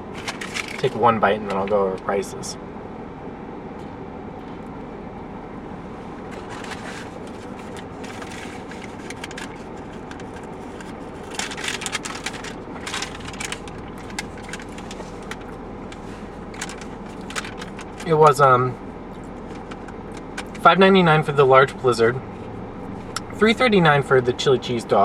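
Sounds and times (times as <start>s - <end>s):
crackly clicks and rustles: 0.0s - 1.8s, 6.3s - 18.3s, 19.1s - 20.7s
low steady hum: 0.0s - 25.0s.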